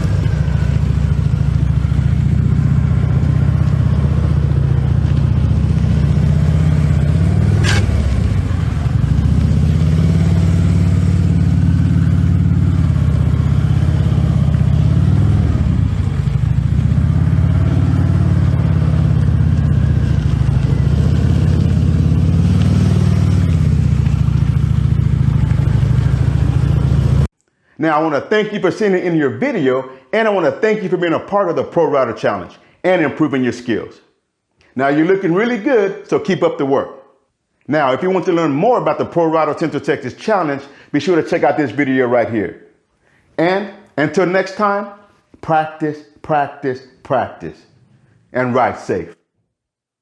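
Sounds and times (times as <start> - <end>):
motorcycle engine running: 0.0 - 27.3.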